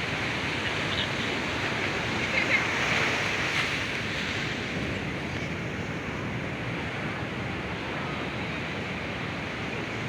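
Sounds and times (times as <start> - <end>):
waves breaking on beach: 0.0 - 10.0.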